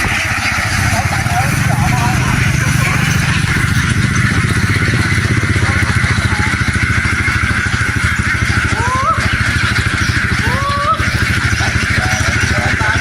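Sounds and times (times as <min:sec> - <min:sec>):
engine running with fast chug: 0:00.0 - 0:13.0.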